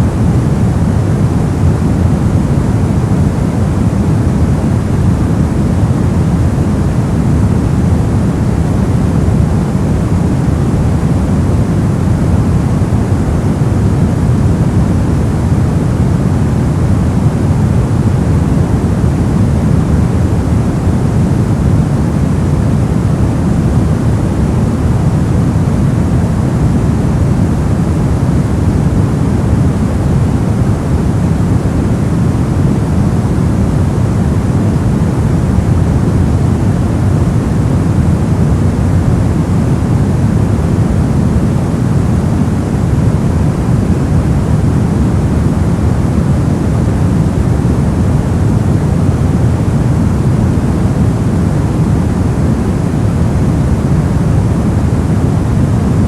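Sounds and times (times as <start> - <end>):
deep white noise hiss: 0.0 - 56.0.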